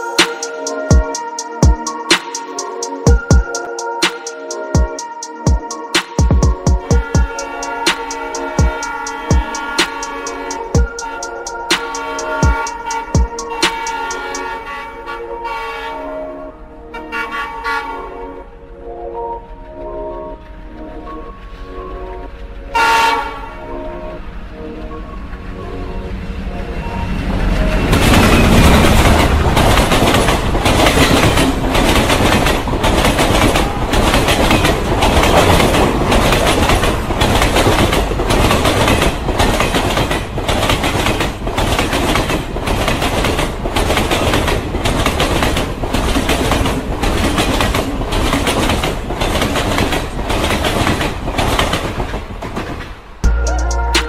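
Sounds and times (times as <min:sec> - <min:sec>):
train wheels clattering over rail joints: 0:28.0 - 0:53.1.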